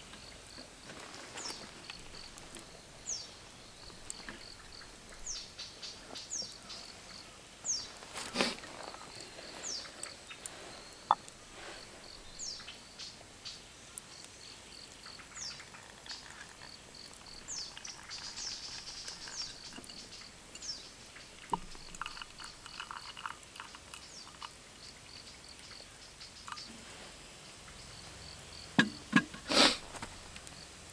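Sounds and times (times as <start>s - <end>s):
pulsing insect chirp: 1.4s - 7.9s, 8.9s - 26.7s.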